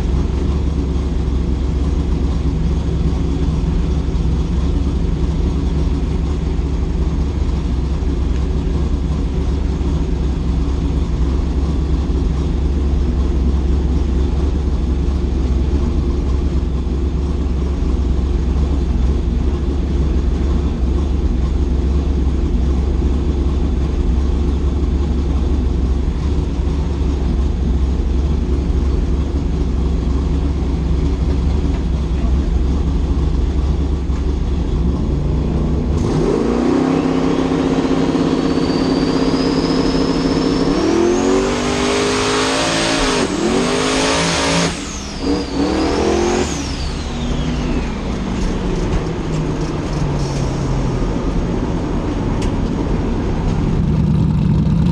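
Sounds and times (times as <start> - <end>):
drag car engine revving: 0.0 - 54.9
turbo whistle: 36.8 - 41.9.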